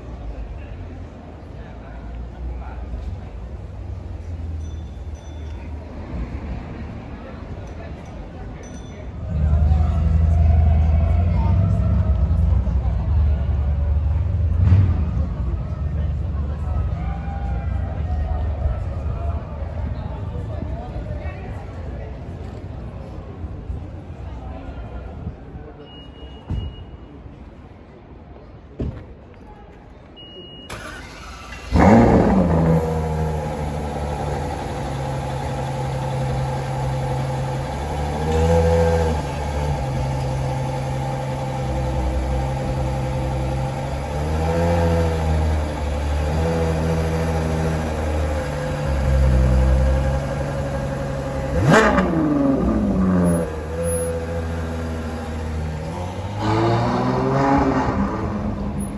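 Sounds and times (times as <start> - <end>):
car engine starting and revving: 9.4 - 16.6, 30.7 - 58.9.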